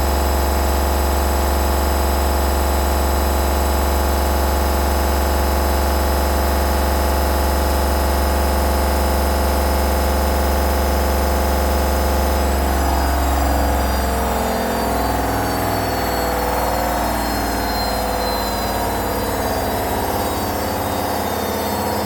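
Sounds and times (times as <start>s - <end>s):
washing machine spinning: 0.0s - 22.0s.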